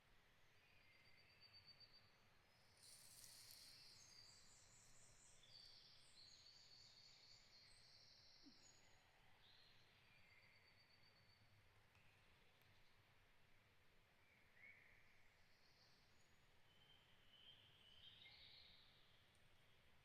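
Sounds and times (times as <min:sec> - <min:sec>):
songbird singing: 0:00.6 - 0:11.0.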